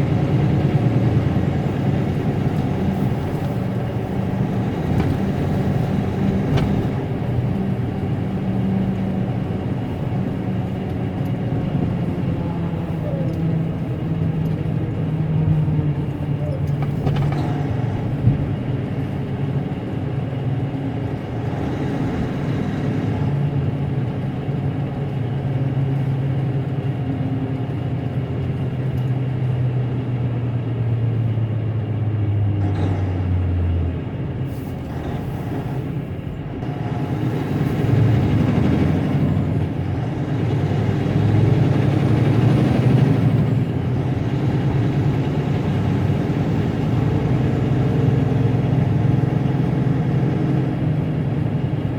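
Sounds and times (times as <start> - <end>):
diesel truck engine running: 0.0 - 51.9.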